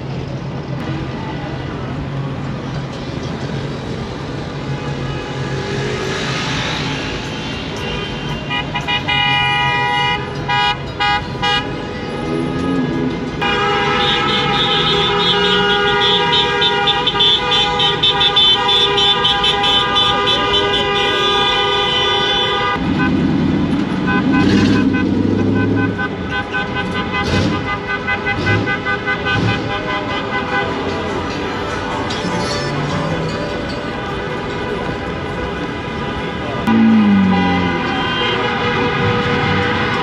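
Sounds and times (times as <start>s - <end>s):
road traffic: 0.0s - 40.0s
vehicle horn honking: 7.9s - 23.2s, 36.7s - 40.0s.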